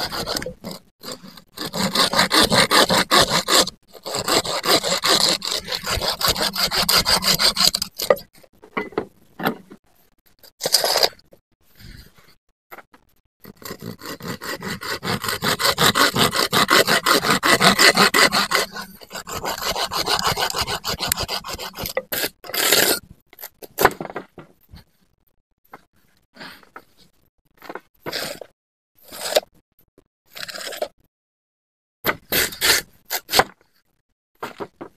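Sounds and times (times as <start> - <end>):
hand saw cutting wood: 0.0 - 8.2, 10.6 - 11.2, 13.4 - 24.0, 28.1 - 29.5, 32.1 - 33.6.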